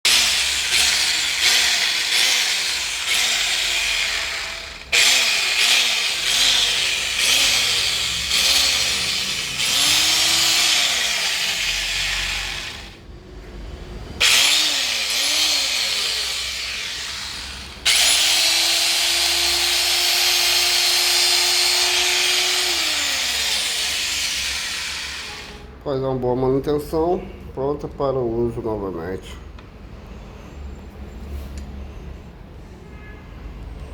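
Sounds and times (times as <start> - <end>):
electric saw motor whining: 0.1 - 13.0, 14.2 - 25.6.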